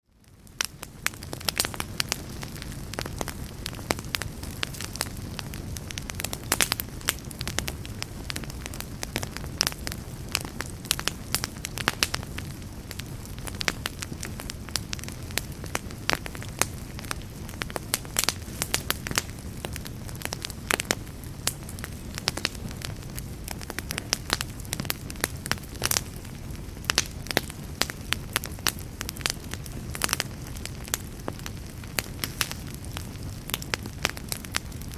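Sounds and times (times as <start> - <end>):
low fire rumble: 0.0 - 34.9
wood fire crackling and popping: 0.0 - 34.9.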